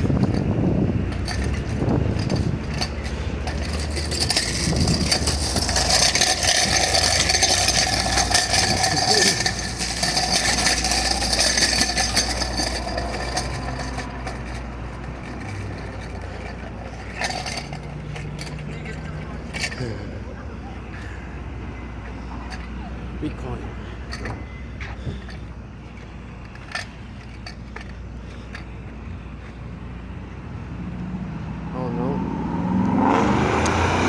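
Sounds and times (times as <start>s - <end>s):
vehicle driving past: 30.6s - 34.0s.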